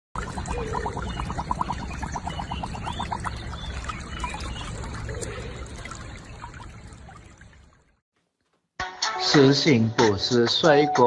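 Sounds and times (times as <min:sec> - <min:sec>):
dog lapping water: 0:00.2 - 0:07.7
stream trickling: 0:00.2 - 0:08.0.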